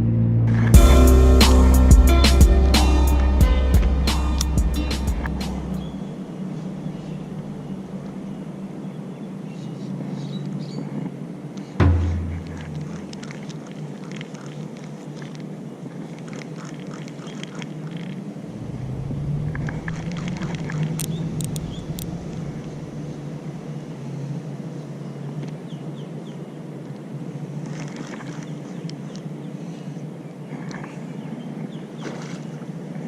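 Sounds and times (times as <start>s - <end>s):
low rumble: 0.0s - 8.3s, 11.8s - 13.4s, 18.5s - 23.7s.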